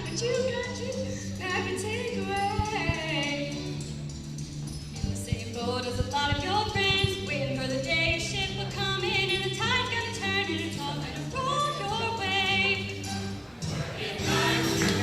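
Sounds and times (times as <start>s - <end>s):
bass accompaniment: 0.0s - 15.0s
choir singing with vibrato: 13.6s - 15.0s.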